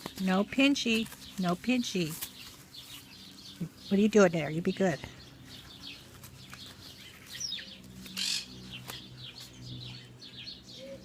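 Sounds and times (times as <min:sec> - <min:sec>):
rustling: 0:00.0 - 0:04.2, 0:05.4 - 0:09.7
bird chirping: 0:00.0 - 0:11.0.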